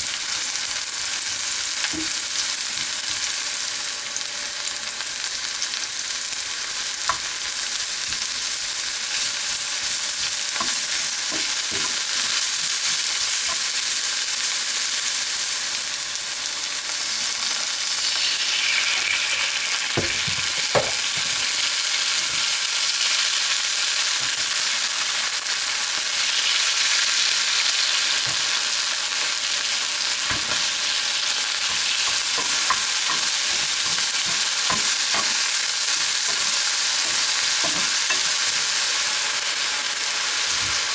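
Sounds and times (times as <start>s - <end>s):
food sizzling in a pan: 0.0s - 40.9s
utensil knocking on pan: 10.6s - 12.0s, 20.0s - 21.5s, 30.3s - 30.7s, 31.6s - 38.4s.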